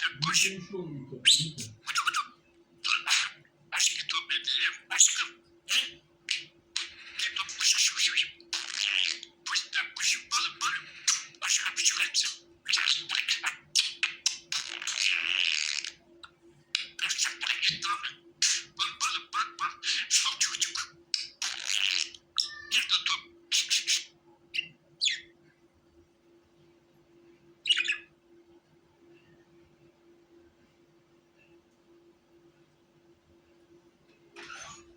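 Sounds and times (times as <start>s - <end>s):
budgerigar warbling and chirping: 0.0s - 16.0s, 16.8s - 25.3s, 27.6s - 28.1s
faint steady hum: 0.0s - 34.9s.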